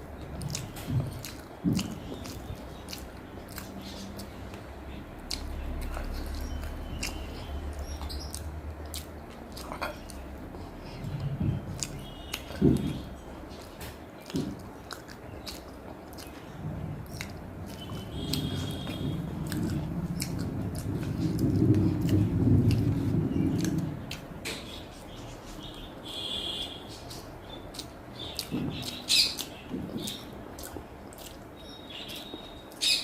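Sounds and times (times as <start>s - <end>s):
close chewing and eating: 0.0s - 33.0s
wet mouth clicks and smacks: 17.1s - 22.9s, 27.7s - 31.4s.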